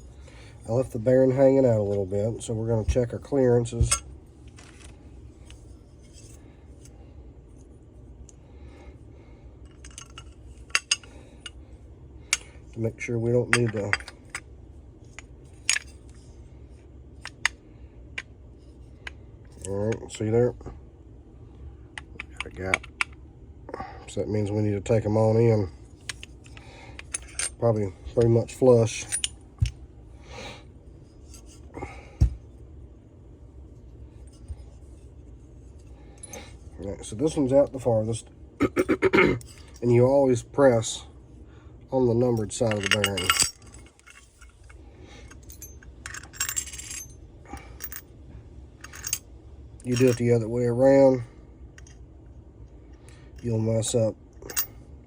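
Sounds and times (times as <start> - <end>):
handling engine parts on workbench: 2.8 - 6.9, 15.0 - 16.3, 26.0 - 29.8, 31.0 - 32.5, 42.4 - 48.1, 48.8 - 50.3
light metal clicks and clinks: 42.4 - 47.1.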